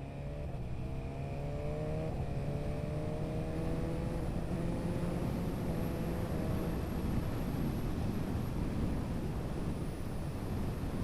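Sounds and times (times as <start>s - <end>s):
wind on microphone: 4.4s - 11.0s.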